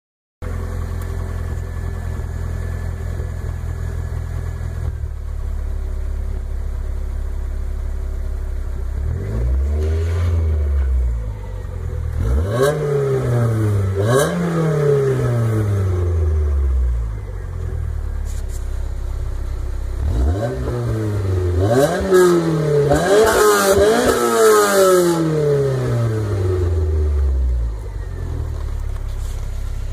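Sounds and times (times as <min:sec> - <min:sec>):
car engine idling and revving: 0:00.4 - 0:29.9.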